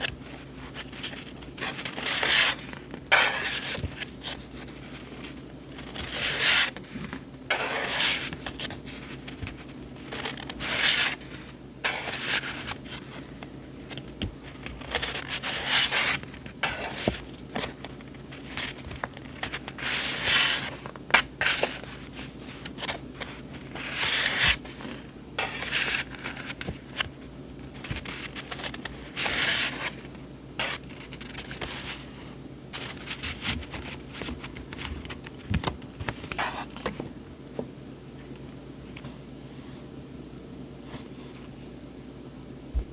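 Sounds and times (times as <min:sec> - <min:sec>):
paper rustling: 0:00.0 - 0:32.2, 0:32.8 - 0:37.2.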